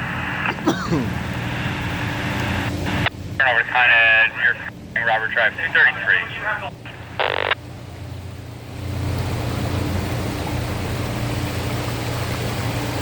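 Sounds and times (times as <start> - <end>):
fire engine rumbling: 0.0 - 13.0
radio beep: 3.0 - 7.6
water rushing and splashing: 7.6 - 13.0.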